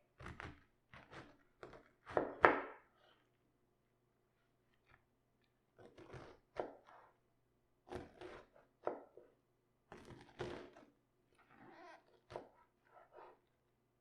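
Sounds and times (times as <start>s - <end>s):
cabbage cut on cutting board: 0.2s - 2.7s, 5.8s - 7.1s, 7.9s - 9.0s, 9.9s - 10.9s.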